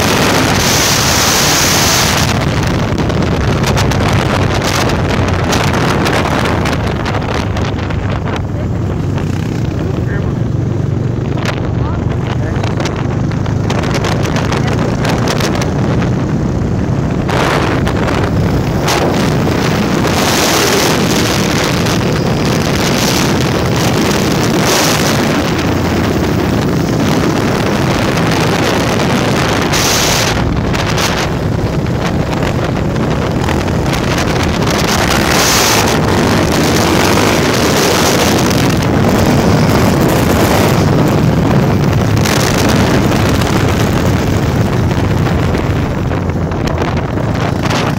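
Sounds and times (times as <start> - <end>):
motorcycle engine running: 0.0 - 47.9
wind buffeting microphone: 0.0 - 47.9.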